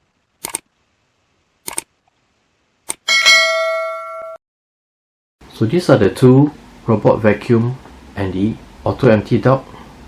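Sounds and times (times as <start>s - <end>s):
sharp clicks: 0.4s - 0.7s, 1.6s - 1.9s
electronic chime: 3.1s - 4.4s.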